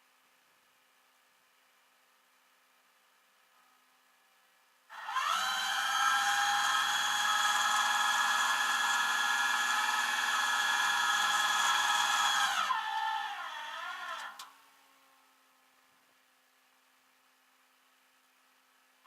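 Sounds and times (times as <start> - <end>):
power tool motor whining: 4.9 - 14.5.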